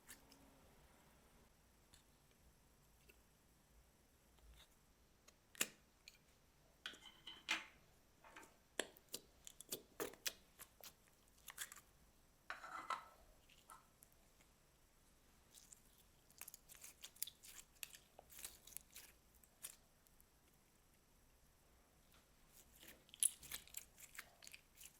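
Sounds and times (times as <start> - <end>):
slime squishing: 8.8 - 11.9, 15.4 - 20.6, 22.5 - 24.9
slime clicking and crackling: 15.5 - 19.8, 22.6 - 24.9.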